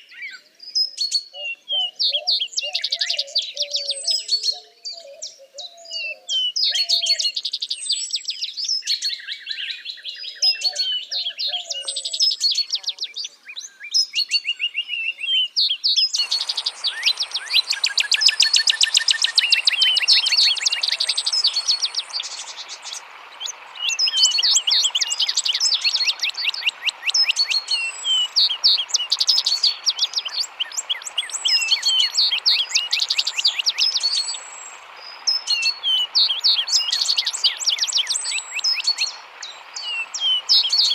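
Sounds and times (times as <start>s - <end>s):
songbirds chirping and singing: 0.0s - 40.9s
running water: 16.1s - 40.9s
thin high steady tone: 16.2s - 35.8s.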